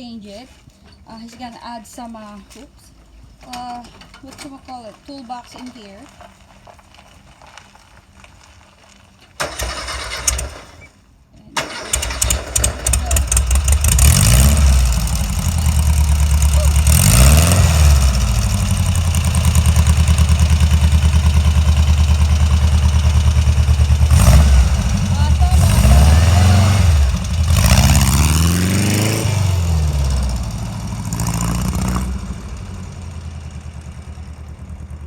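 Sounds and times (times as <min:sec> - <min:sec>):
engine starter cranking: 0:09.4 - 0:11.0, 0:11.6 - 0:28.2
engine revving and idling: 0:12.0 - 0:35.0.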